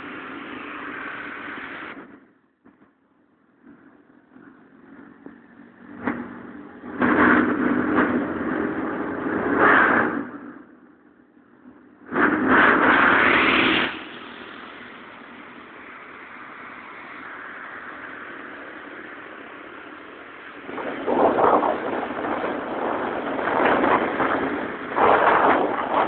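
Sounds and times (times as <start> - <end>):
rushing noise: 0.0 - 2.8, 12.0 - 26.0.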